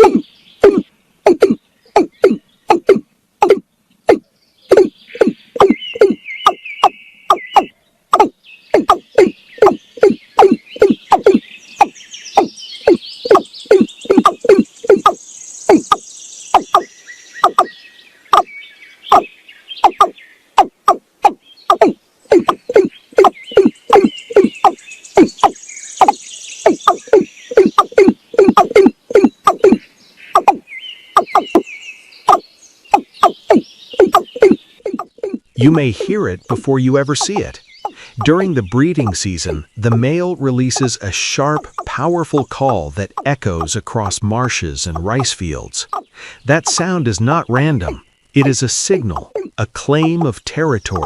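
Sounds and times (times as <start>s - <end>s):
watercock calling deep notes: 0.0s - 18.5s, 19.1s - 51.0s
faint high chirping: 0.0s - 44.2s, 44.9s - 51.0s.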